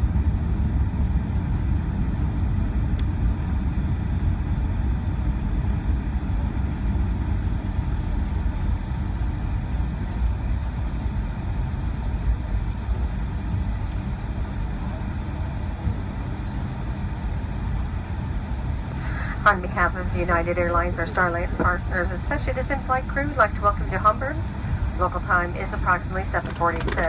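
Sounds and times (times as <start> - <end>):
airliner cabin rumble while taxiing: 0.0 - 27.0
engine and wheel noise: 26.2 - 27.0.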